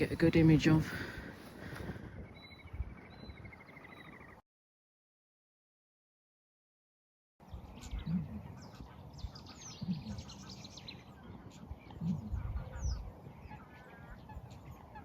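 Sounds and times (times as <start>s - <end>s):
small birds calling: 0.0s - 4.4s, 7.4s - 15.0s.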